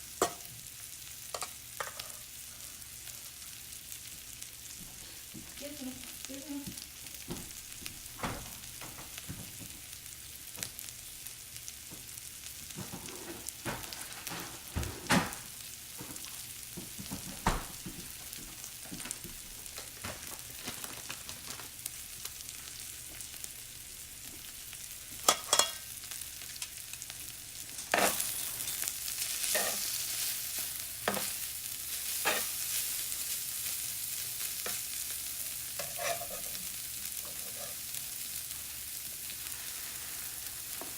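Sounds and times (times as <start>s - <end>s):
food sizzling in a skillet: 0.0s - 40.9s.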